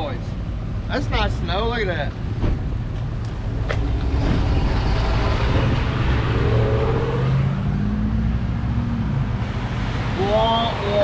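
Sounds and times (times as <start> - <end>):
road noise: 0.0 - 11.0
car engine accelerating: 3.4 - 10.1.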